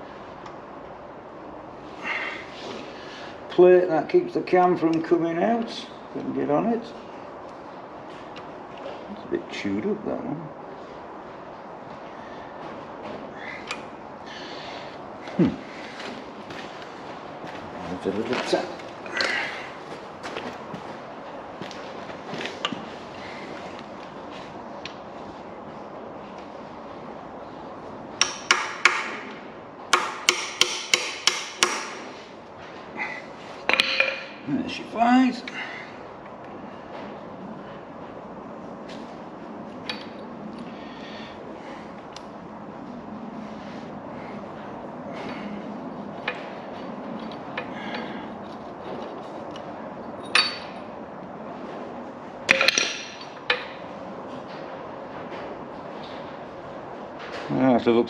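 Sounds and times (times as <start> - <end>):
steady low hum: 0.0 - 58.0
hammer tapping on metal: 28.2 - 32.0
metal tools clinking: 33.7 - 34.5, 50.2 - 50.9, 52.5 - 53.8.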